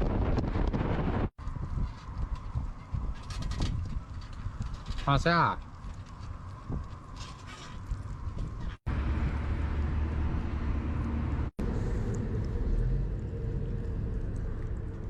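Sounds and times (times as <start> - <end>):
wind buffeting microphone: 0.0 - 15.0
vehicle running: 8.9 - 15.0.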